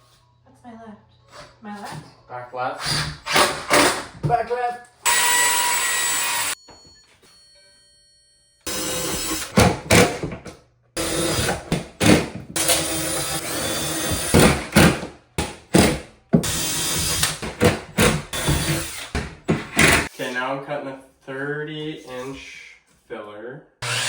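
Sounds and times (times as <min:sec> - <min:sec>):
power tool running: 0:05.1 - 0:06.6, 0:08.7 - 0:10.2, 0:11.0 - 0:15.1, 0:15.8 - 0:20.1.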